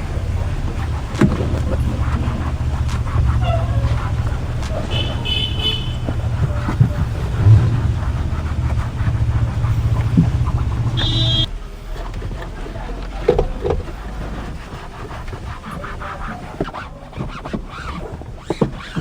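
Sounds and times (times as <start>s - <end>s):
low machine hum: 0.0s - 11.5s
short high horn toots: 2.9s - 8.0s, 10.7s - 11.5s.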